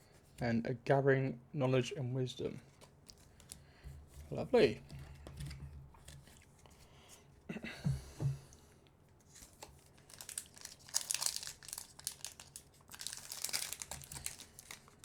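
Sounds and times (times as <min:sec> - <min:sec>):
wrapper crinkling and tearing: 0:09.3 - 0:15.0.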